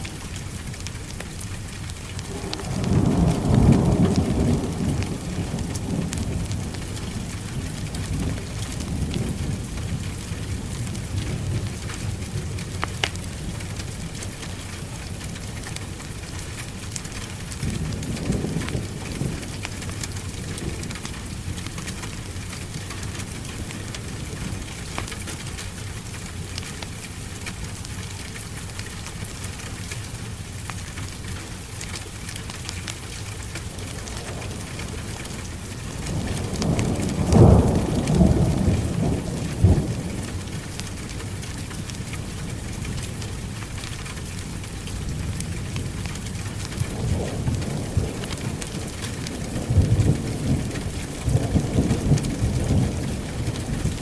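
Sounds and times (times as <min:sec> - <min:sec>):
heavy rain on a surface: 0:00.0 - 0:54.0
rolling thunder: 0:02.2 - 0:12.7, 0:33.6 - 0:43.5, 0:45.0 - 0:54.0.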